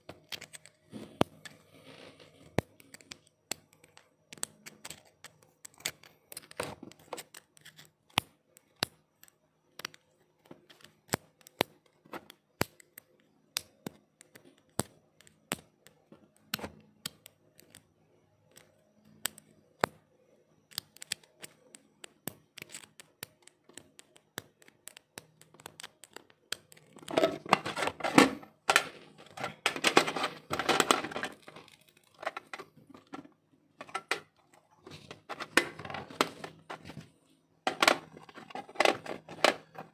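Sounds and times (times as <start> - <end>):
laptop clicks and taps: 20.7 - 27.5.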